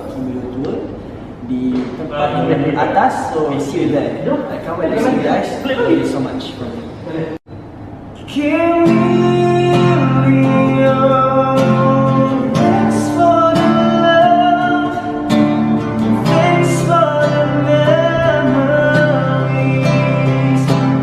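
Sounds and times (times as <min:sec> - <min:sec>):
person singing: 0:08.2 - 0:15.4, 0:16.0 - 0:21.0
strummed acoustic guitar: 0:08.2 - 0:21.0.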